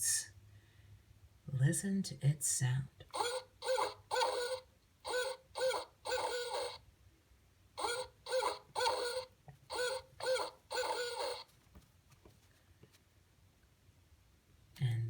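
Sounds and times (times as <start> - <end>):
owl hooting: 3.1 - 6.8, 7.8 - 11.5.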